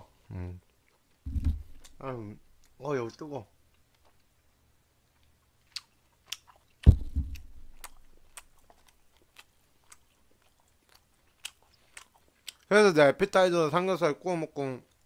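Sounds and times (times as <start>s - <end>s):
chewing with wet mouth clicks: 0.6s - 1.2s, 2.6s - 12.7s
dull thump: 1.3s - 2.0s, 6.8s - 7.8s.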